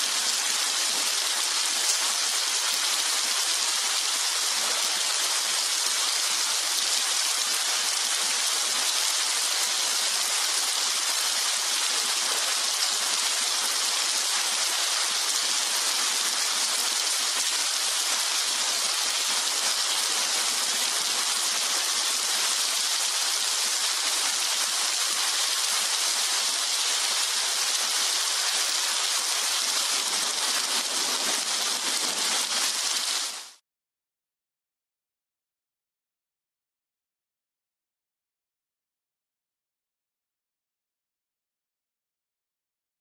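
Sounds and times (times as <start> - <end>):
rain falling steadily: 0.0 - 33.6.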